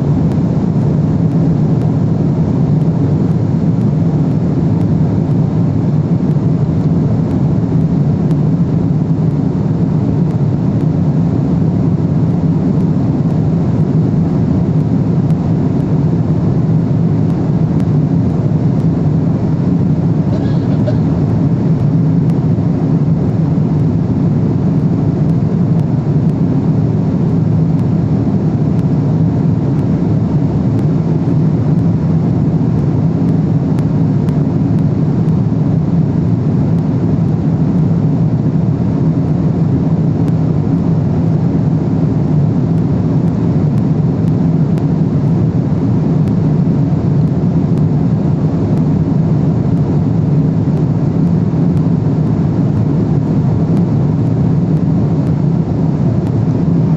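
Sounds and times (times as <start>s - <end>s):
airliner cabin drone: 0.0s - 56.9s.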